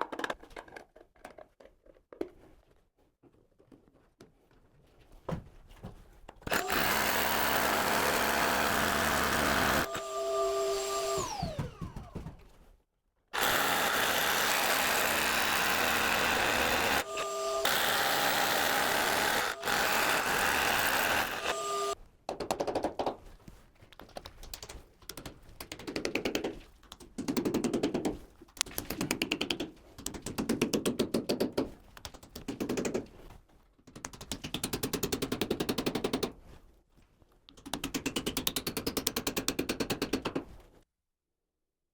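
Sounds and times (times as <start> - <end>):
power saw cutting wood: 6.5 - 12.2, 13.4 - 22.0.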